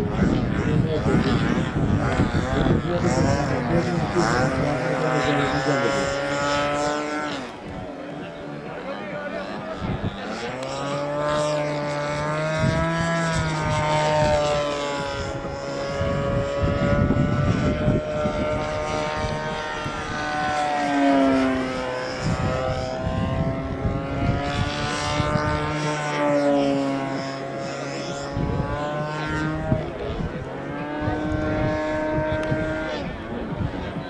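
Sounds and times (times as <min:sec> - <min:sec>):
model airplane engine buzzing: 0:00.0 - 0:34.0
wind buffeting microphone: 0:00.0 - 0:34.0.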